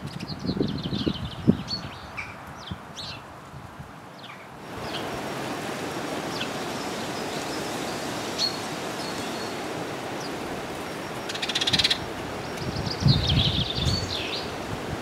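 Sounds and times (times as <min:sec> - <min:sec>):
birds chirping: 0:04.2 - 0:14.6.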